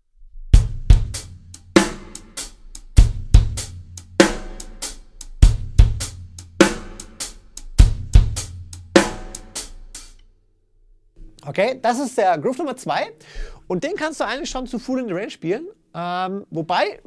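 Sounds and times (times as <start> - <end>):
bass drum hits: 0.6 - 10.0
snare drum backbeat: 0.6 - 10.2
shuffled hi-hat: 0.6 - 10.3.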